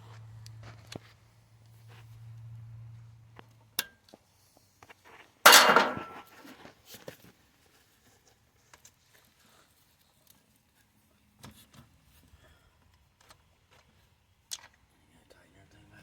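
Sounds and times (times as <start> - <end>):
metal tools clinking: 5.5 - 6.3
ringing clatter of metal: 5.5 - 6.3.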